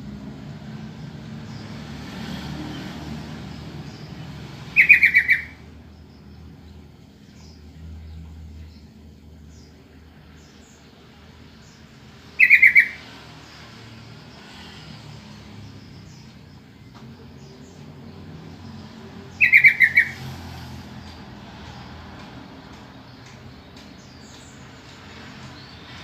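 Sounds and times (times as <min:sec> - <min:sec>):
bulbul chattering call: 0:04.7 - 0:05.7, 0:12.3 - 0:13.1, 0:19.3 - 0:20.3.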